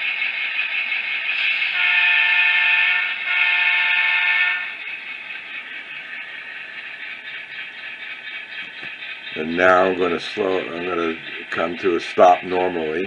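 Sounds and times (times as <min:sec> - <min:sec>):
locomotive running engine sound: 0:00.0 - 0:13.0
model train horn blasts: 0:01.7 - 0:04.8.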